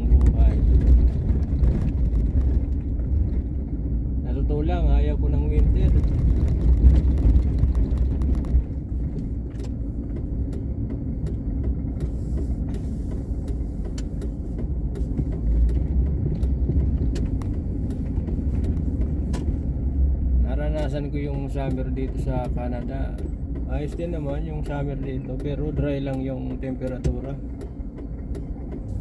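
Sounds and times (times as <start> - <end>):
engine and road rumble: 0.0 - 29.0
faint clicks and ticks: 5.5 - 29.0.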